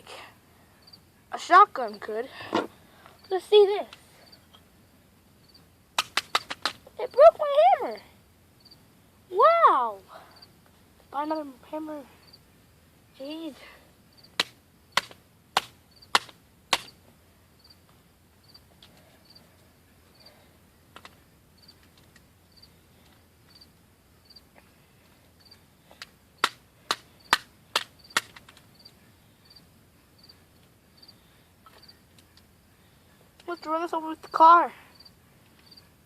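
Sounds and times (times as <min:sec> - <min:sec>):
cricket chirping: 0:00.8 - 0:01.2, 0:04.2 - 0:04.6, 0:05.4 - 0:08.0, 0:08.6 - 0:08.9, 0:10.2 - 0:10.6, 0:12.2 - 0:12.9, 0:14.1 - 0:15.2, 0:15.9 - 0:24.5, 0:25.4 - 0:26.5, 0:27.1 - 0:35.9.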